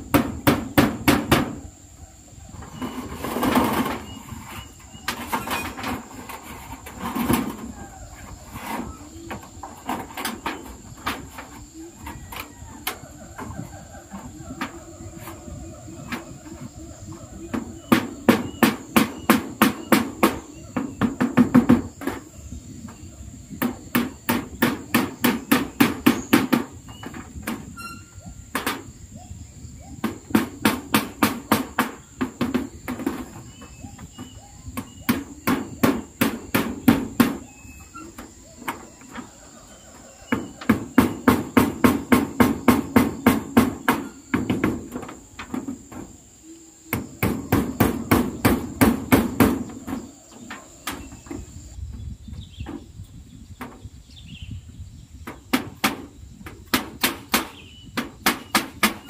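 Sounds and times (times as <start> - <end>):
hammer on metal roofing: 0.0 - 1.7, 17.4 - 22.3, 23.6 - 28.9, 30.0 - 39.3, 40.3 - 46.2, 46.9 - 51.5, 55.2 - 59.0
high insect drone: 0.0 - 59.0.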